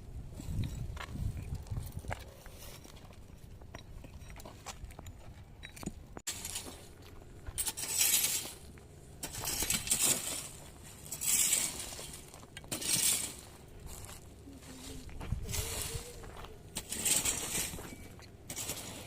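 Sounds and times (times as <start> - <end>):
swishing scraping strokes: 7.6 - 19.0.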